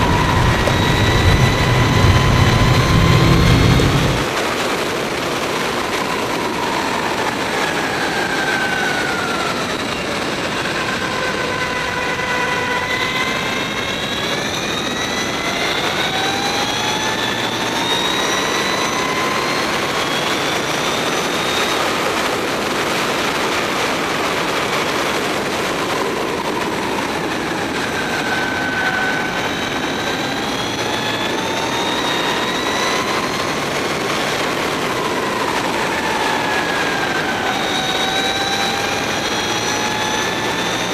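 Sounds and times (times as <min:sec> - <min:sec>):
electric motorcycle motor whining: 0:00.0 - 0:04.3
wind noise: 0:00.0 - 0:11.4.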